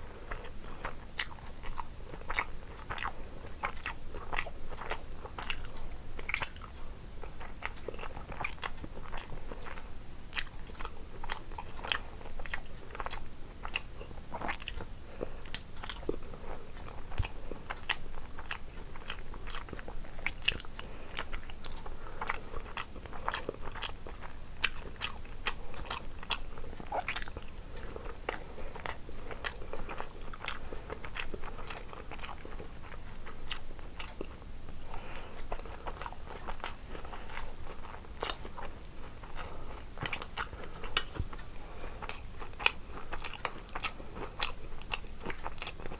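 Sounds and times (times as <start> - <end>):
person chewing crunchy food: 0.0 - 45.9.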